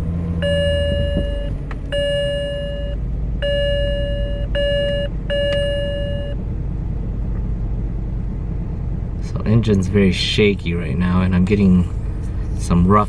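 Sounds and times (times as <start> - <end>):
car warning chime beeps: 0.4 - 6.4.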